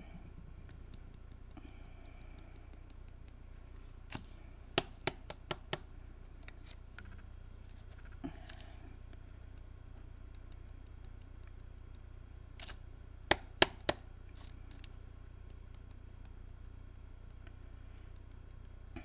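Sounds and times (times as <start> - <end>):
faint ticking: 0.0 - 3.6, 8.3 - 12.4, 14.7 - 19.0.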